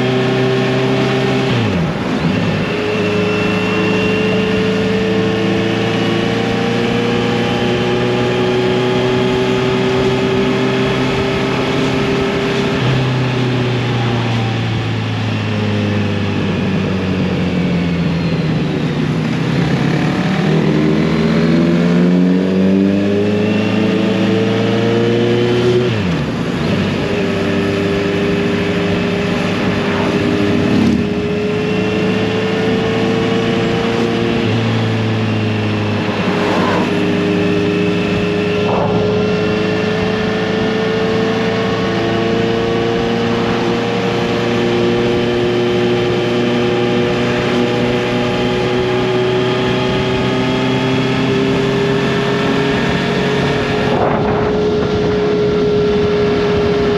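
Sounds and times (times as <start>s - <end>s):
motorcycle engine cruising: 0.0s - 56.9s.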